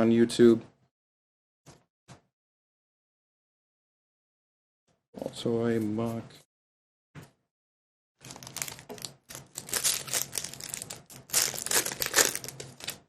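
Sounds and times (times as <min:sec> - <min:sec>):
foil wrapper crinkling and tearing: 0:08.2 - 0:13.0.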